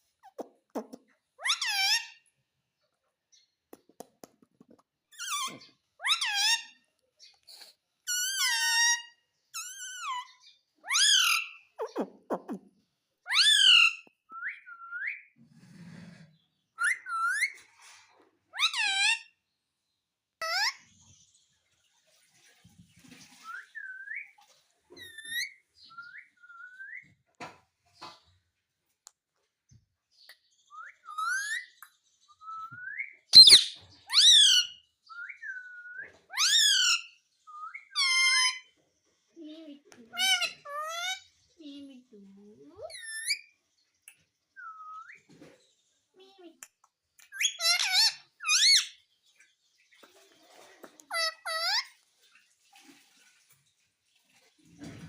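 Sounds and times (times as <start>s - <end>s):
parrot whistling and calling: 1.4s - 2.2s, 8.1s - 12.5s, 13.3s - 15.3s, 16.8s - 17.6s, 25.0s - 27.2s, 30.7s - 38.7s, 40.1s - 41.3s, 42.8s - 43.5s, 44.6s - 45.3s, 47.2s - 49.0s, 51.1s - 51.9s
parakeet whistled calls: 30.7s - 38.7s, 47.3s - 49.0s.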